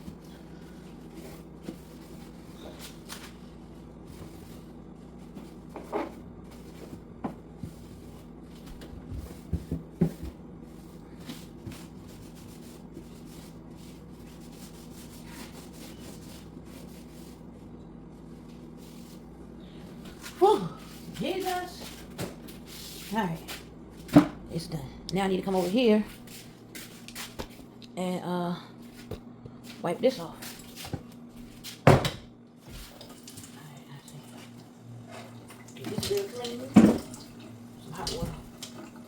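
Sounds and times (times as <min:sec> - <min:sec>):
wiping and rubbing surfaces: 0:00.0 - 0:19.3, 0:20.1 - 0:24.1
low steady hum: 0:00.0 - 0:39.0.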